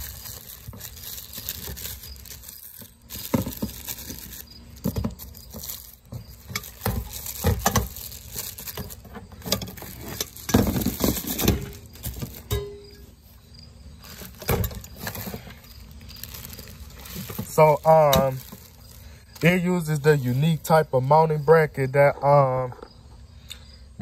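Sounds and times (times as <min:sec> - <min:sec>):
packaging rustling: 0:00.0 - 0:12.6, 0:14.0 - 0:20.5.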